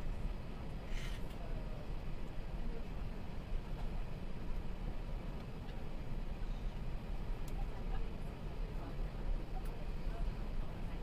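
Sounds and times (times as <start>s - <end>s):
airplane cabin engine noise: 0.0s - 11.0s
faint click: 7.4s - 7.6s.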